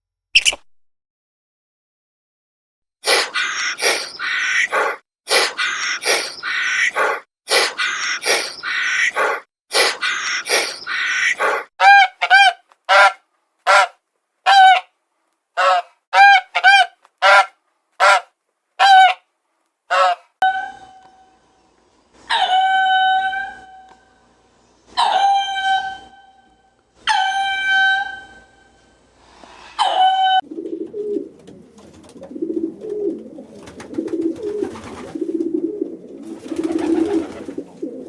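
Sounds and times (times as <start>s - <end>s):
harsh rasping animal calls: 3.0s - 14.9s.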